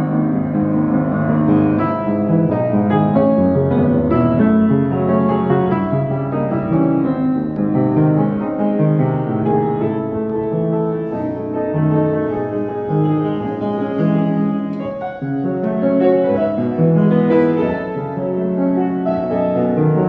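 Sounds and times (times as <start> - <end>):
piano playing: 0.0 - 20.0.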